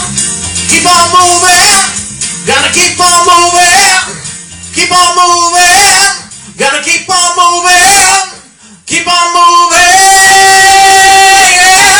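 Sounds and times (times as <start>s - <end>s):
person singing drawn-out notes: 9.0s - 11.9s.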